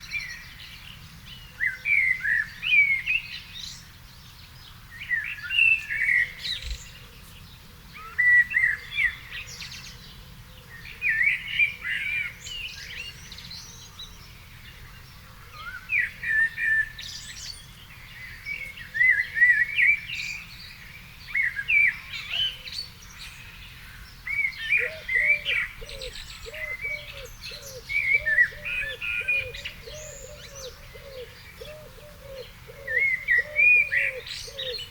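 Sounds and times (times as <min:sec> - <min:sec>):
songbird warbling: 0:23.4 - 0:34.9
repeated low bird call: 0:24.4 - 0:34.9.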